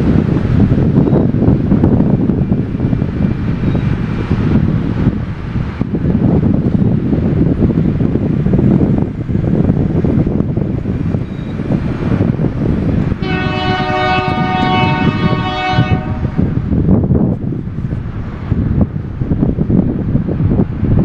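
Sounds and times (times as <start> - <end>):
train rumbling on rails: 0.0 - 21.0
wind on microphone: 0.0 - 21.0
train air horn chord: 13.2 - 16.6.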